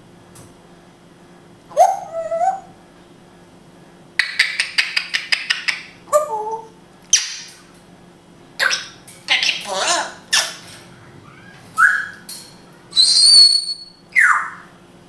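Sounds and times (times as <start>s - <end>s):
parrot harsh squawk: 8.6s - 12.2s, 12.9s - 14.7s
parrot gliding call: 12.9s - 14.7s.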